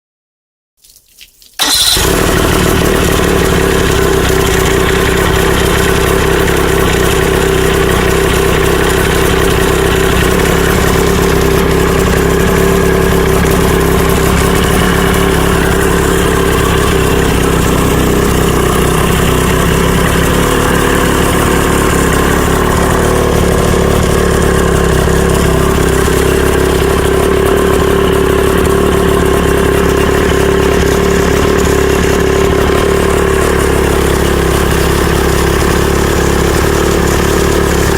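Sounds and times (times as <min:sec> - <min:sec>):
outboard motor idling: 0:01.6 - 0:37.9.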